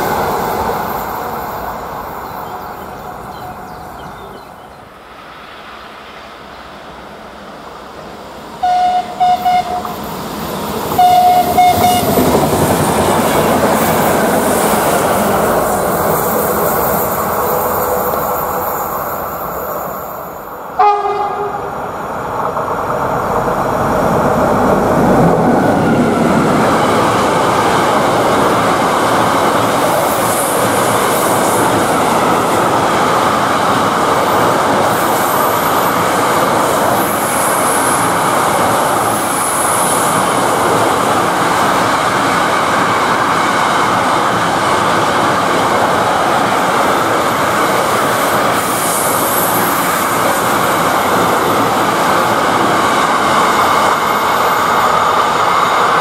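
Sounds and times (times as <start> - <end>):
freight train clattering past: 0.0 - 56.0
passenger train passing: 0.0 - 56.0
train horn blasts: 8.6 - 10.0, 11.0 - 12.1, 20.8 - 21.8.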